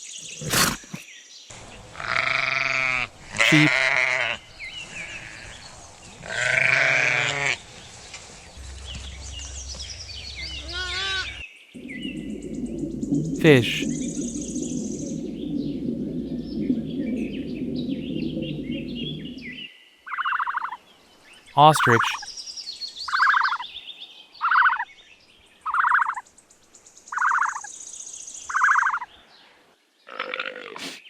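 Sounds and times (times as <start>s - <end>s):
low rushing noise: 7.6s - 19.6s
ostrich pulsed calls: 8.2s - 19.6s.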